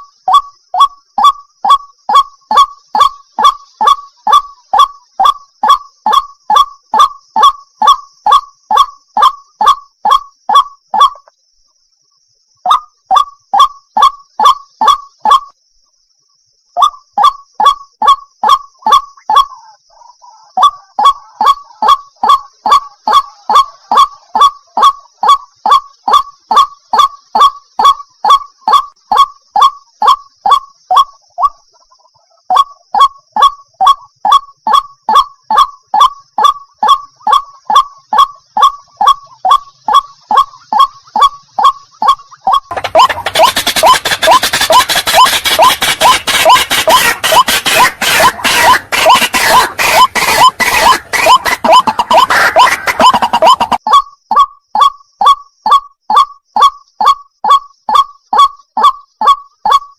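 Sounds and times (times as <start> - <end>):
water hen honking calls: 40.4 - 53.8.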